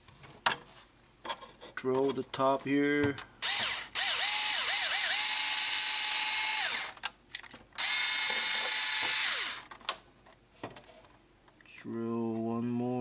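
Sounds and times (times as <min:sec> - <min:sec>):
electric screwdriver motor whine: 0:03.4 - 0:07.0, 0:07.8 - 0:09.7.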